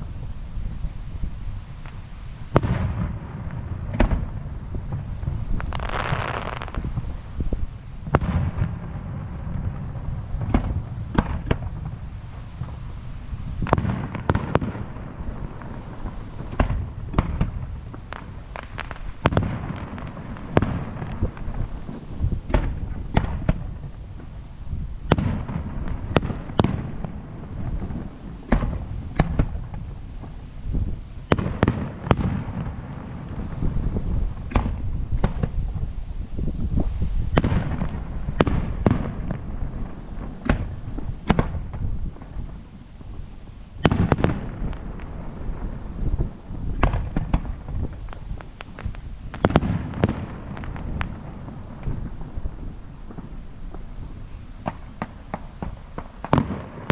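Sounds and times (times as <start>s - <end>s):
fireworks bangs and cracks: 0.0s - 56.9s
low background fireworks noise: 0.0s - 56.9s.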